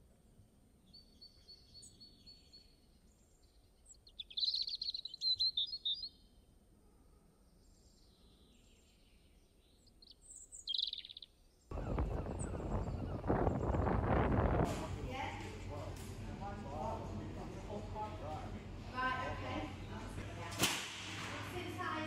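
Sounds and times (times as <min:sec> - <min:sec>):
bird singing: 0:00.8 - 0:06.5, 0:07.5 - 0:14.3.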